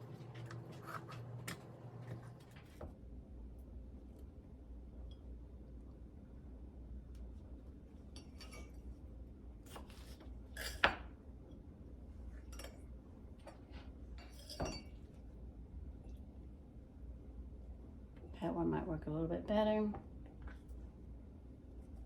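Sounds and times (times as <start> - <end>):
kitchen utensils clinking and scraping: 14.2 - 15.0.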